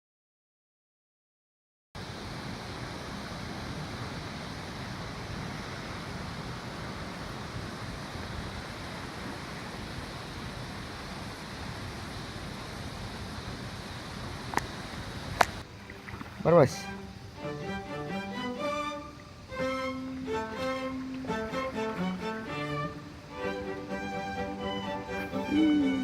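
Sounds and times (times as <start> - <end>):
wind rumbling on microphone: 2.0 - 16.6
sea surf breaking: 2.0 - 17.4.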